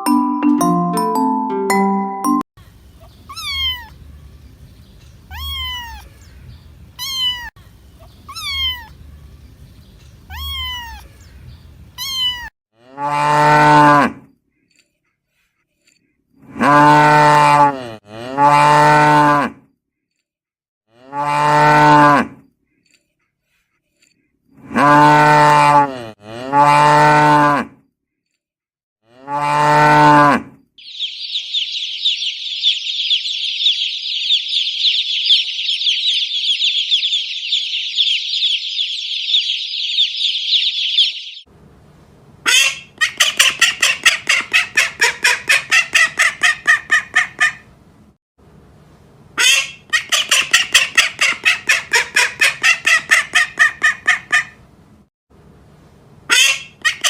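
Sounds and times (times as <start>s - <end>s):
high-pitched chirping: 0.0s - 2.4s, 7.0s - 8.9s, 30.8s - 41.5s
cow mooing: 12.8s - 14.2s, 16.6s - 19.6s, 20.9s - 22.4s, 24.7s - 27.8s, 29.0s - 30.5s
fowl honking calls: 42.4s - 47.6s, 49.4s - 54.6s, 56.3s - 57.0s.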